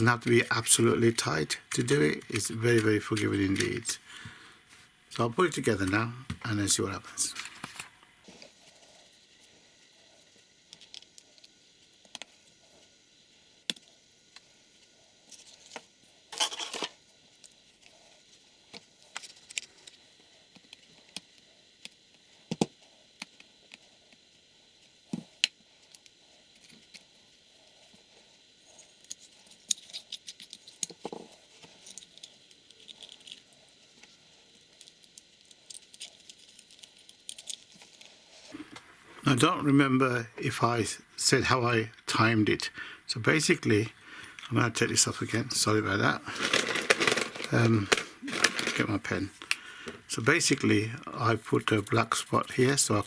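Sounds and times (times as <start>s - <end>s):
plastic parts rattling: 29.4s - 33.5s, 34.6s - 38.1s, 45.3s - 50.1s
plastic parts clicking and tapping: 46.4s - 50.1s.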